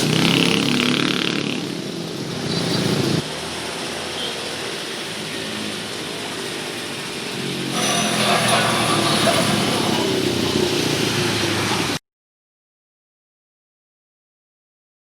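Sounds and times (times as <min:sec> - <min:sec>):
engine running: 0:00.0 - 0:12.0
hiss: 0:02.4 - 0:12.0.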